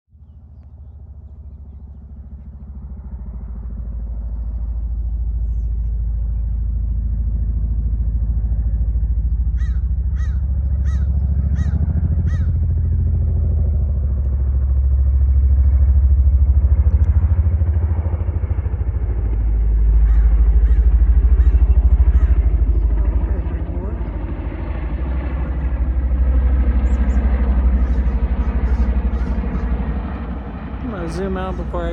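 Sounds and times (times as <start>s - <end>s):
helicopter rotors beating: 0.2s - 31.9s
bird calling: 9.6s - 12.5s, 20.0s - 24.2s, 26.8s - 29.9s.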